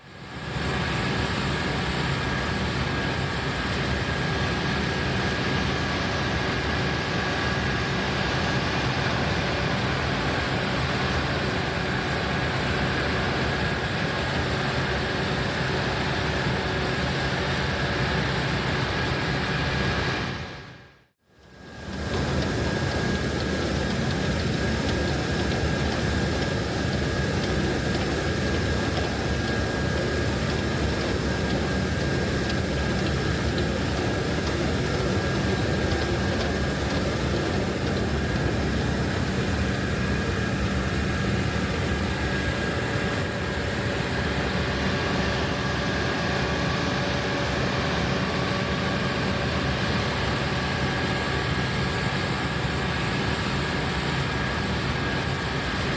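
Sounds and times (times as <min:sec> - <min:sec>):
low engine drone: 0:21.4 - 0:51.5.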